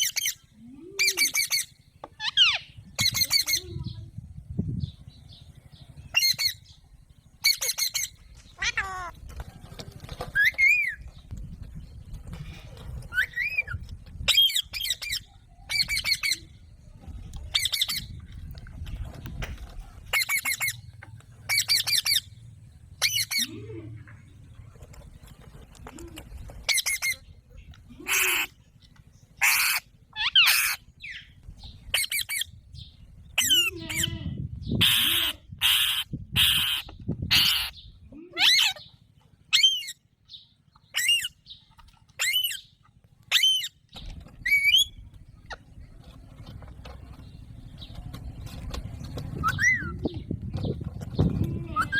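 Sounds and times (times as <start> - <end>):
parakeet squawking: 7.4 - 9.1, 29.4 - 30.8, 33.4 - 34.2, 34.8 - 37.8, 38.4 - 38.9.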